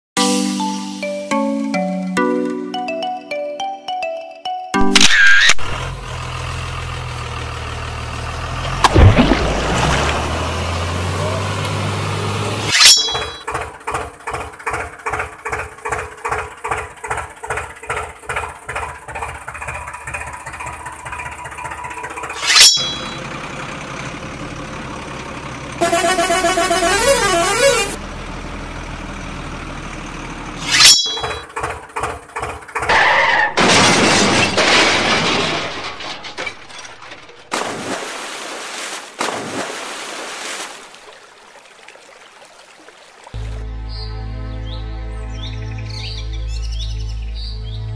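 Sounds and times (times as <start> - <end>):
short horn blasts: 25.8 - 28.0.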